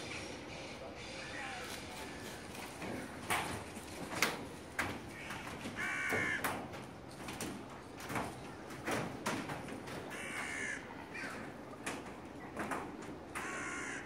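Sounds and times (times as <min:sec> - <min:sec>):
birds cawing: 0:05.1 - 0:06.7, 0:10.0 - 0:11.6, 0:13.3 - 0:14.0.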